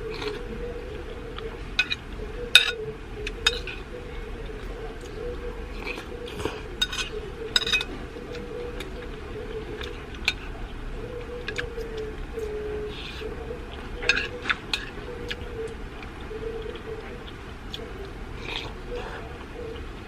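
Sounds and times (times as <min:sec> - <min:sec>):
steady hum: 0:00.0 - 0:20.0
cutlery clinking against dishes: 0:03.4 - 0:03.8, 0:05.8 - 0:08.0.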